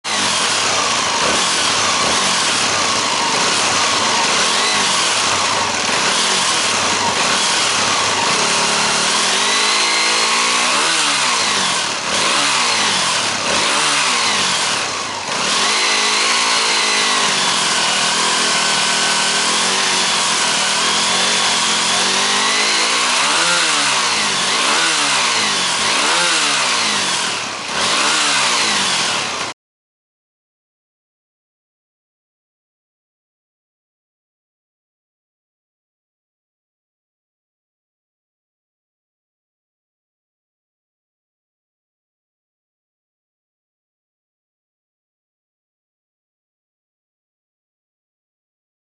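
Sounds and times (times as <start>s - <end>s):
motorcycle engine revving: 0.0s - 29.6s.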